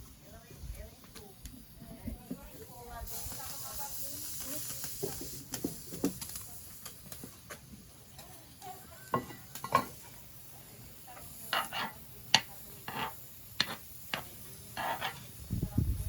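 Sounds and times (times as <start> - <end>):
utensils clinking against dishes: 11.5 - 14.2.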